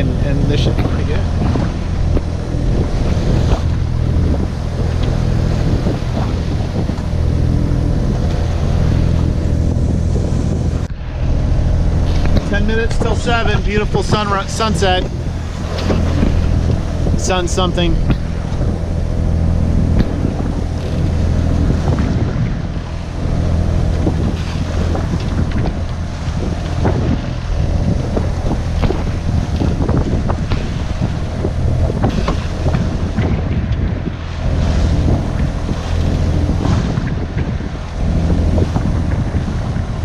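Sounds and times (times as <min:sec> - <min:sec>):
boat engine humming: 0:00.0 - 0:40.0
wind buffeting microphone: 0:00.0 - 0:40.0
knocks through boat: 0:12.0 - 0:18.8, 0:19.4 - 0:23.0, 0:23.6 - 0:40.0.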